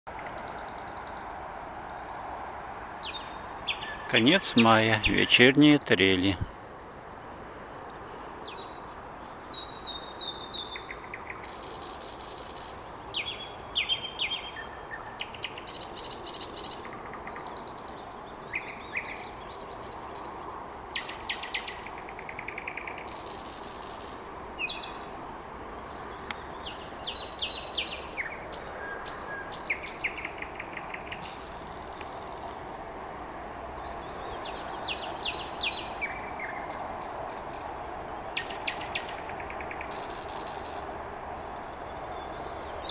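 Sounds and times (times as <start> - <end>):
nightingale singing: 3.0 - 6.5, 8.4 - 25.1, 25.8 - 32.8, 33.8 - 42.9.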